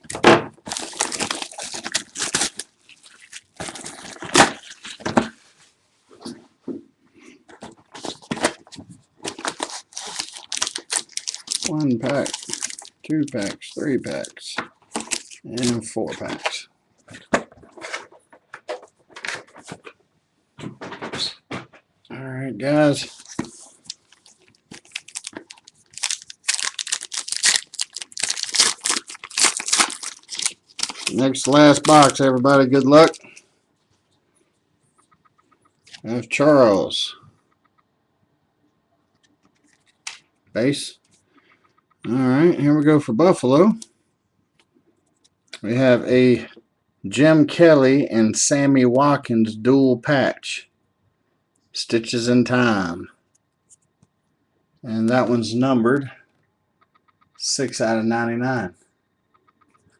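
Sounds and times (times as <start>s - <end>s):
plastic wrapping crinkling: 0.0s - 5.1s, 7.9s - 19.9s, 23.0s - 33.4s
cardboard packaging tearing: 0.7s - 5.0s, 9.3s - 13.6s, 23.1s - 33.2s.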